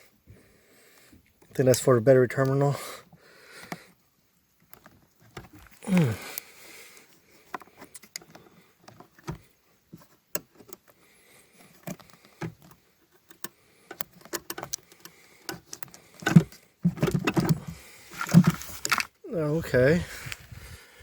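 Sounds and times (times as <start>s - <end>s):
small plastic parts clicking: 11.7s - 17.6s.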